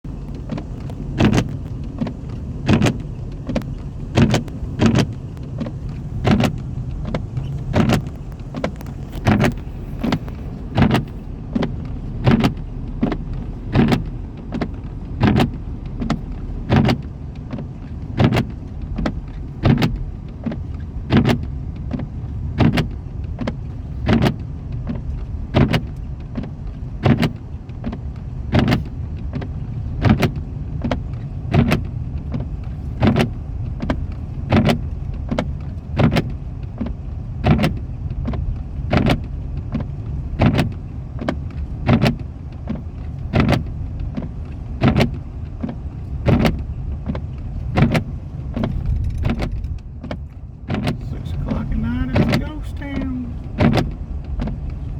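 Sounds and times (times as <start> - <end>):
car interior low rumble: 0.0 - 54.9
windshield wipers knocking: 0.1 - 54.9.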